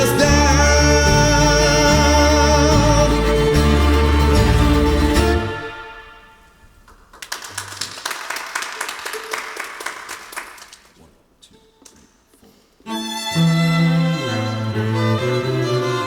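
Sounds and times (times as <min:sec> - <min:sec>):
bowed strings playing: 0:00.0 - 0:06.5, 0:12.9 - 0:16.0
light clapping: 0:06.8 - 0:11.1.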